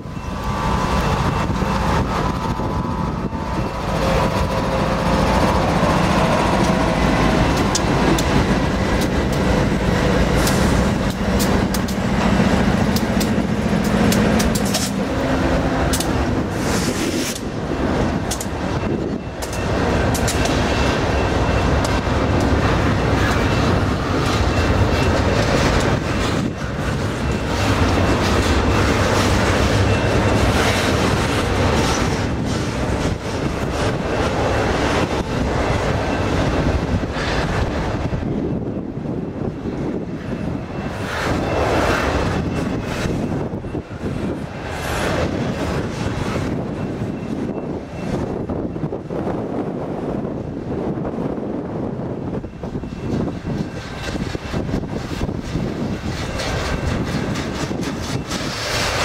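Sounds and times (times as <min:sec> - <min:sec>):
wheels clacking over rails: 0:00.0 - 0:38.3, 0:52.4 - 0:59.0
diesel locomotive engines droning: 0:00.0 - 0:59.0
train cars rumbling past: 0:00.0 - 0:59.0.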